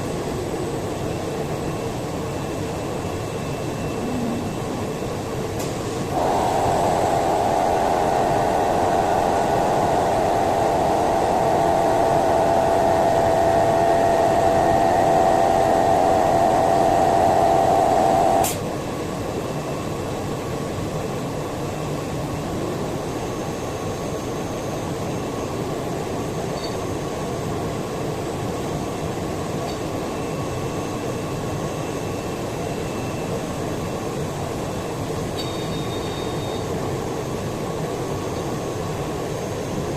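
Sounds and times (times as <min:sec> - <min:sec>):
steady machine whirring: 0:05.9 - 0:18.6.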